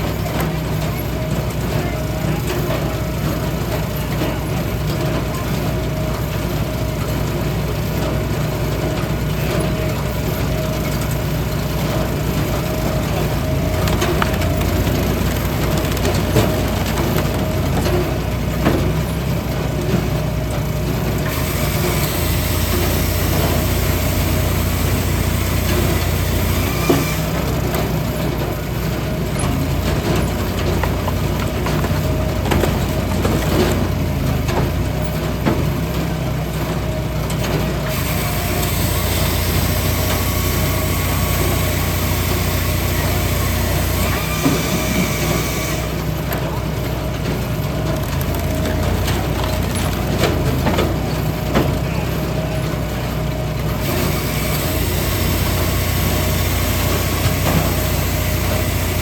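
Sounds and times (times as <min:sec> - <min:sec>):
log splitter engine running: 0:00.0 - 0:59.0
wood cracking and splitting: 0:10.6 - 0:19.3, 0:21.1 - 0:34.7, 0:37.9 - 0:52.2.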